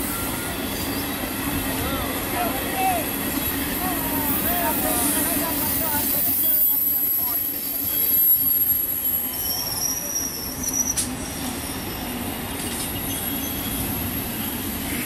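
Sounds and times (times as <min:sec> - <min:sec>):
train wheels rumbling on rails: 0:00.0 - 0:15.0
high wheel squeal: 0:03.7 - 0:12.4, 0:13.0 - 0:15.0.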